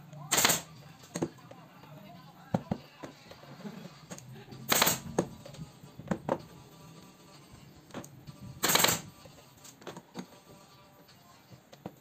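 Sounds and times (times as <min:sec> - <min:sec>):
pneumatic staple gun shots: 0:00.3 - 0:00.7, 0:04.7 - 0:05.1, 0:08.6 - 0:09.1.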